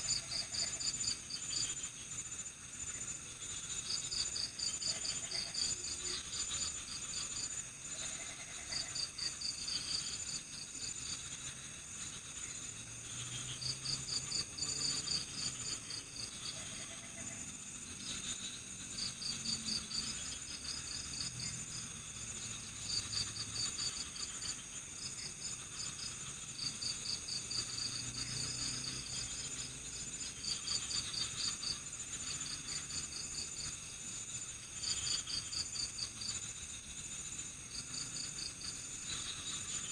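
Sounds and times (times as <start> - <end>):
cricket chirping trills: 0.0 - 39.9.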